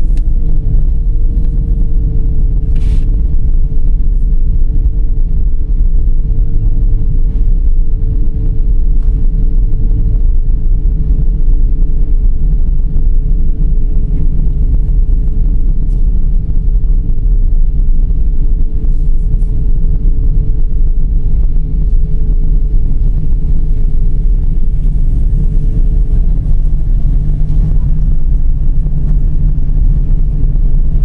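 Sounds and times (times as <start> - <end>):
road noise: 0.0 - 10.2, 21.3 - 31.0
car engine rumble: 0.0 - 31.0
constant hum: 0.0 - 31.0.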